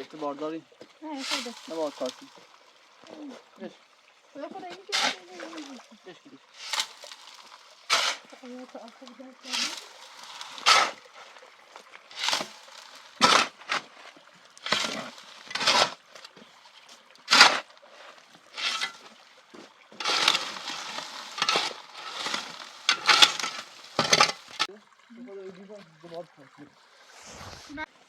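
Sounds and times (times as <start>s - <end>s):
scraping strokes: 1.2s - 2.4s, 6.6s - 8.4s, 9.5s - 11.0s, 12.1s - 13.9s, 14.6s - 16.0s, 18.6s - 19.0s, 20.0s - 24.7s, 27.0s - 27.9s.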